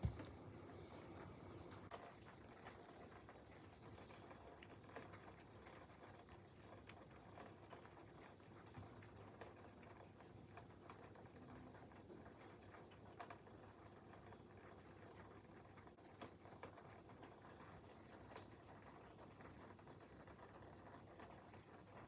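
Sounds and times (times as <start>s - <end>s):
raindrop ticks: 1.7s - 22.0s.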